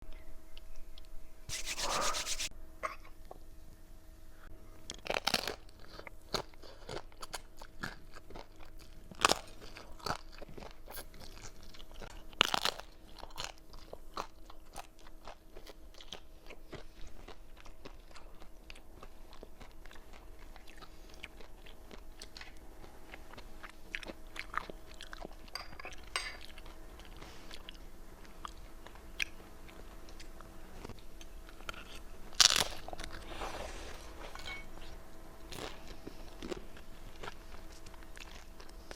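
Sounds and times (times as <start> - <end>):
crunching fried chips: 4.9 - 18.6, 31.5 - 33.3
crackly chewing: 4.9 - 33.4, 34.8 - 38.9.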